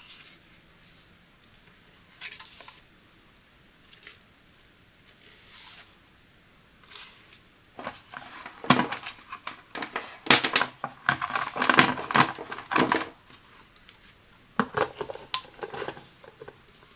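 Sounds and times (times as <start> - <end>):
wrapping crinkling: 7.8 - 13.5.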